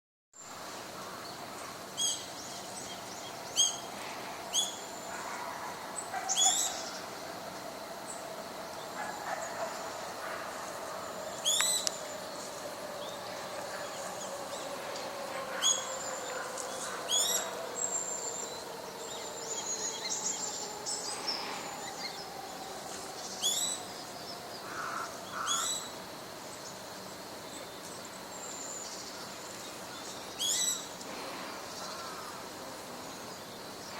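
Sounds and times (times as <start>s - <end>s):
faint low drone: 0.5s - 25.2s.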